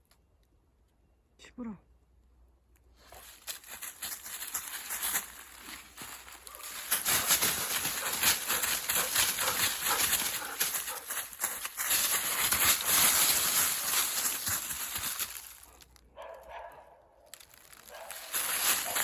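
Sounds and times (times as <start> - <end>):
footsteps crunching dry leaves: 3.0 - 16.0, 17.3 - 19.0.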